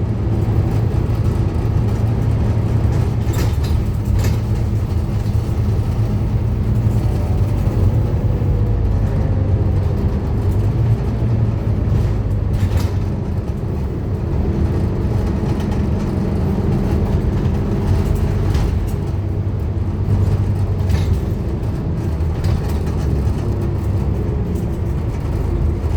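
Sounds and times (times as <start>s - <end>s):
bus diesel engine drone: 0.0s - 25.9s
sharp knocks from bus body: 0.6s - 7.9s, 11.9s - 14.0s, 15.1s - 25.9s.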